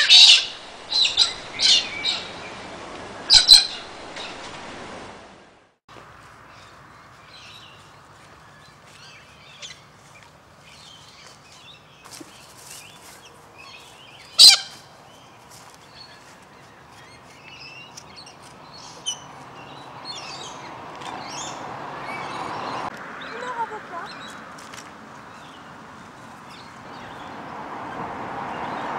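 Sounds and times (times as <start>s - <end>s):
birds chirping and squawking: 0.0s - 4.9s, 6.6s - 24.6s
low rushing hiss: 0.1s - 5.7s.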